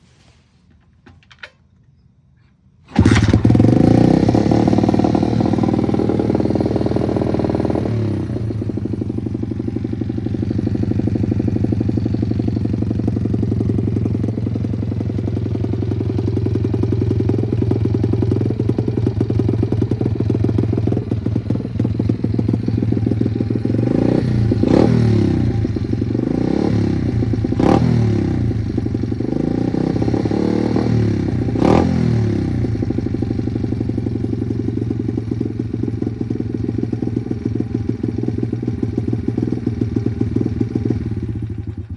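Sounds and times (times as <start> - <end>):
motorbike engine idling: 2.9 - 41.9
throttle blips: 4.7 - 15.2, 31.6 - 41.9.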